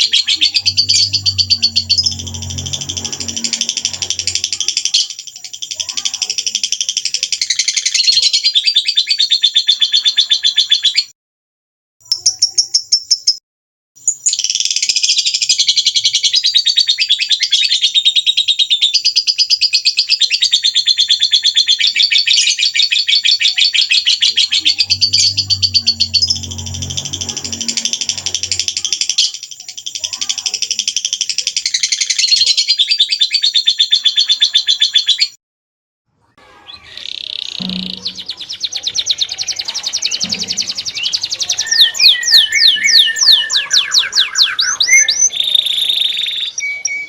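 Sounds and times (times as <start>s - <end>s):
low hum: 0.0s - 5.0s, 24.2s - 29.2s, 37.6s - 38.8s, 40.2s - 41.6s
small songbirds trilling: 0.0s - 11.1s.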